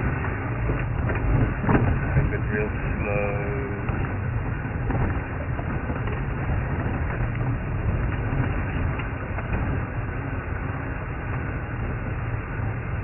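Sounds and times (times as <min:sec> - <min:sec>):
knocks and rattles: 0:00.0 - 0:03.0, 0:03.6 - 0:10.0
vehicle engine low drone: 0:00.0 - 0:13.0.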